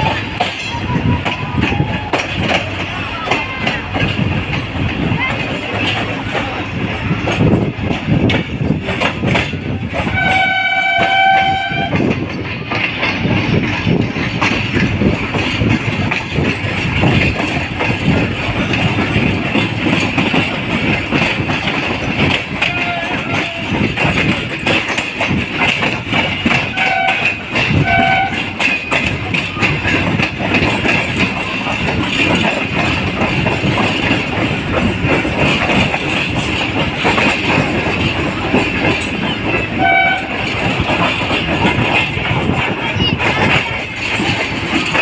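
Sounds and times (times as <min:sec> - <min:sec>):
train wheels clacking on rails: 0:00.0 - 0:45.0
locomotive horn: 0:10.0 - 0:12.0, 0:22.6 - 0:23.8, 0:26.7 - 0:28.6, 0:39.7 - 0:40.5.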